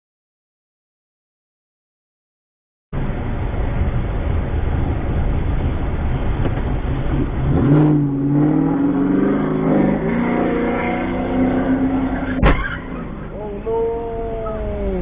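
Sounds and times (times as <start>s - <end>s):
road noise: 2.9s - 15.0s
vehicle engine: 3.0s - 15.0s
engine revving up: 7.1s - 12.4s.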